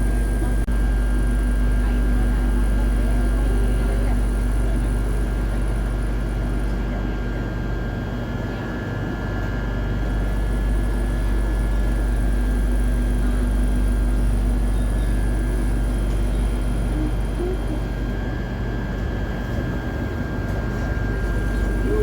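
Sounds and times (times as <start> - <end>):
train carriage rumble: 0.0 - 22.0
constant whining tones: 9.8 - 22.0
electric hum: 10.0 - 22.0.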